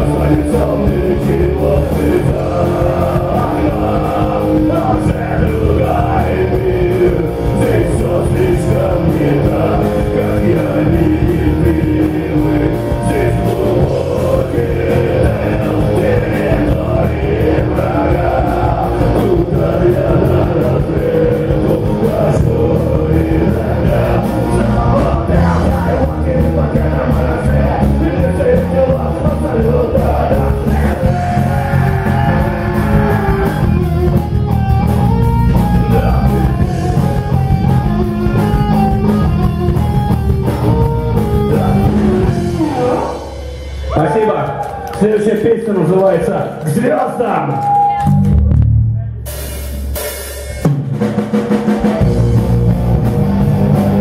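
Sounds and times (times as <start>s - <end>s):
person singing: 0.0s - 34.2s, 35.3s - 39.4s, 40.5s - 44.0s
rock band playing live: 0.0s - 54.0s.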